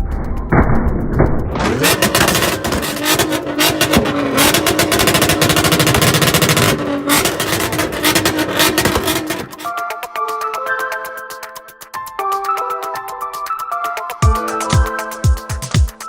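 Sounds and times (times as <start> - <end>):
car engine revving hard: 1.6 - 9.7.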